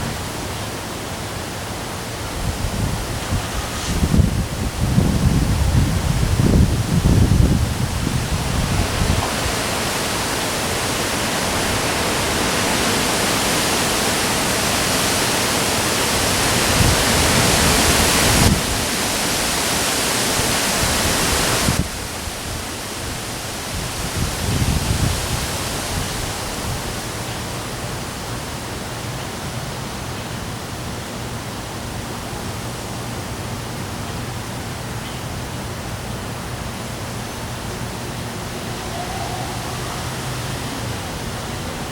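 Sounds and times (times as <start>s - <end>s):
wind buffeting microphone: 0.0s - 14.6s, 15.3s - 27.3s
heavy rain pouring: 0.0s - 34.8s, 35.6s - 41.9s.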